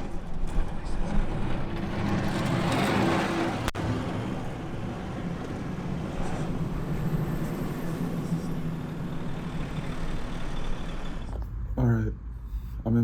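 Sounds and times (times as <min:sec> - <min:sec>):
car road rumble: 0:00.0 - 0:13.0.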